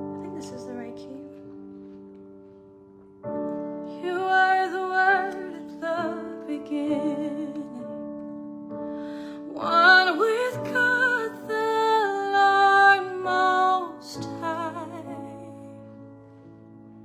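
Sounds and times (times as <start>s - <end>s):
woman singing wordless phrase: 4.0s - 7.9s.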